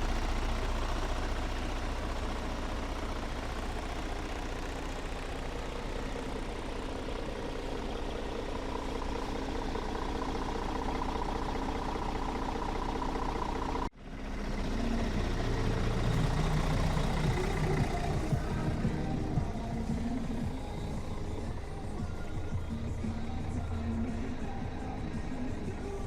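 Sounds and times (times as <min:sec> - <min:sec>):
truck diesel engine idling: 0:00.0 - 0:26.0.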